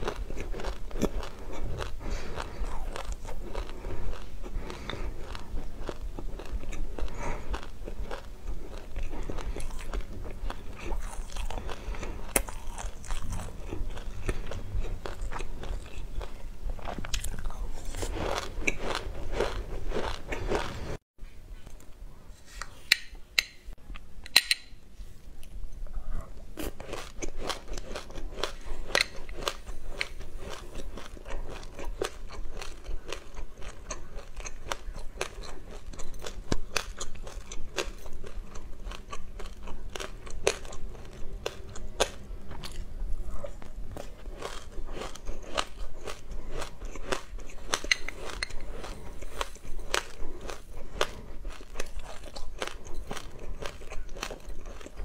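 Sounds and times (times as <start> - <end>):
chewing and crunching seeds: 0.0 - 21.0, 26.5 - 55.0.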